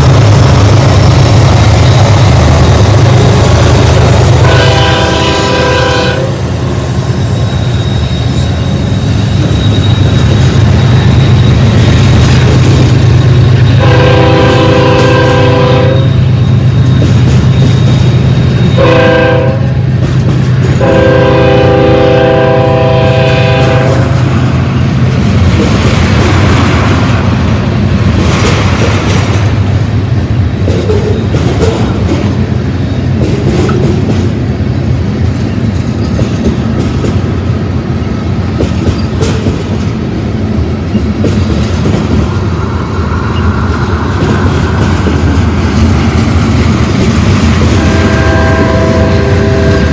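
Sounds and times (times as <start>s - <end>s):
freight cars rumbling: 0.0s - 49.9s
locomotive engine drone: 0.0s - 49.9s
locomotive horn blasts: 3.1s - 6.8s, 13.7s - 16.2s, 18.7s - 19.8s, 20.8s - 24.2s, 47.6s - 49.9s
wheels clattering on rails: 7.2s - 43.5s, 44.1s - 49.4s.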